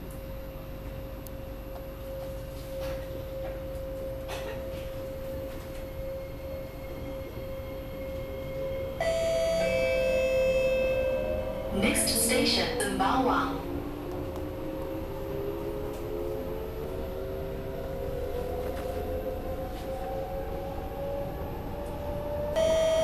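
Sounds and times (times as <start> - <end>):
steady high hum: 0.0 - 18.3
train cabin rumble: 0.7 - 23.0
electronic chime: 9.0 - 11.8.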